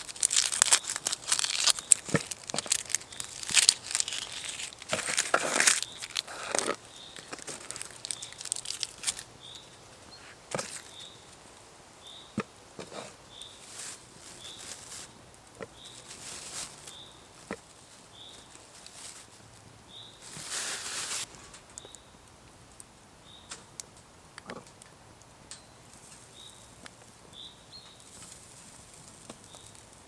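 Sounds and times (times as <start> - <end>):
hand scraping wood: 0.0 - 9.2, 12.8 - 13.2.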